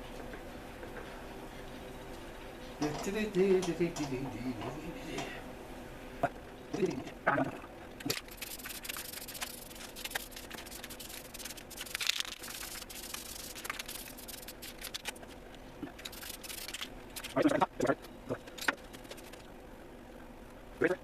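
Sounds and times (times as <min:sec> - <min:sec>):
paint spray hissing: 0:08.3 - 0:15.2, 0:16.0 - 0:17.3.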